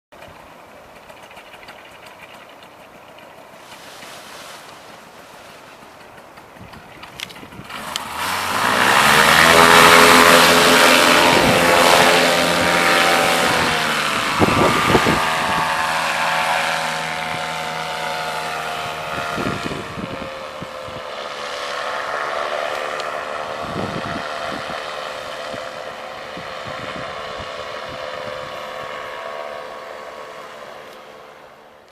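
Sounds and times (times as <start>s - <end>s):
paramotor engine and propeller: 0.2s - 31.9s.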